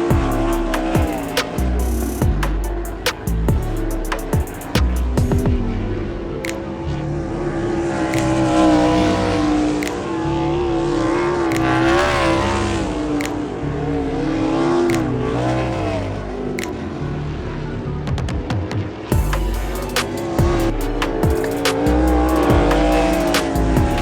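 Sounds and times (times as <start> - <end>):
music with steady beat: 0.0 - 6.8, 18.1 - 24.0
race car engine: 0.0 - 24.0.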